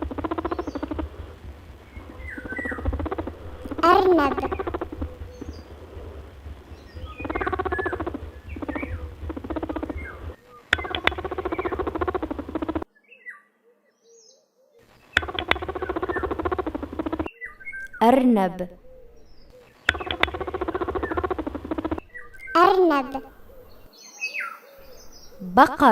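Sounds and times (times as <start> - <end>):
rabbit squeaks and honks: 0.0 - 12.8, 15.2 - 18.2, 19.9 - 23.9
faint chirps: 0.0 - 12.9, 14.8 - 25.9.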